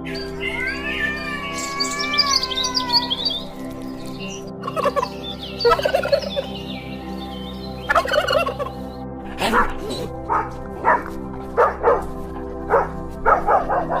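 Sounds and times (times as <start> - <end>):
background music: 0.0 - 14.0
turkey gobbling: 4.6 - 6.6, 7.9 - 8.8.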